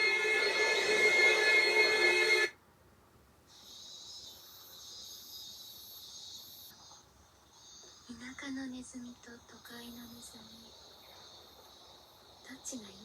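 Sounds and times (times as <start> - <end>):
loud musical chord: 0.0 - 2.5
insects chirring: 3.6 - 13.0.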